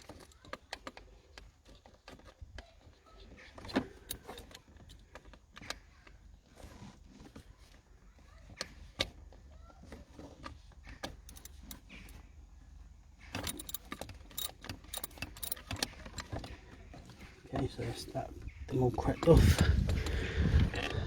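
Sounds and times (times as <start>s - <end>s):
bolts knocking loose: 10.4s - 12.2s, 13.3s - 18.4s
hand tool clicking on bolts: 11.0s - 12.2s, 13.3s - 16.5s.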